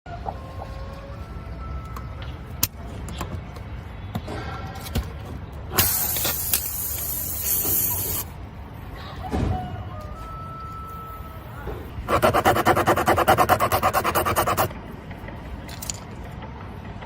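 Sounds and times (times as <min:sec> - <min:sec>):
loud hiss of air: 0:05.7 - 0:08.4.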